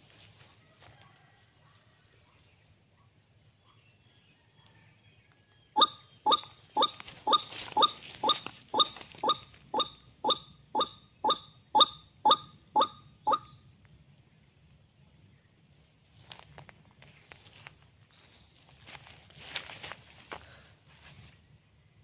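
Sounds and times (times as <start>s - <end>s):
waterhen calling: 5.8s - 13.5s.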